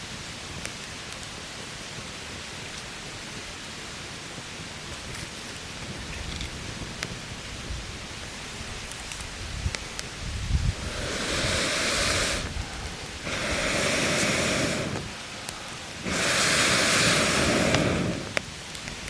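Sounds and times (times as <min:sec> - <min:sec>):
campfire crackling: 0:00.0 - 0:19.0
fire popping: 0:00.0 - 0:19.0
blowing on fire whoosh: 0:09.3 - 0:15.2, 0:15.9 - 0:19.0.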